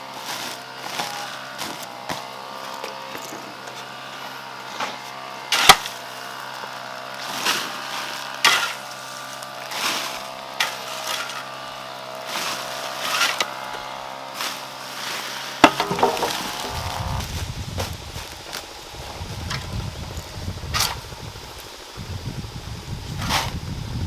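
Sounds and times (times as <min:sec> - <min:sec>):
hand tool scraping strokes: 0:00.0 - 0:19.7, 0:20.7 - 0:21.0.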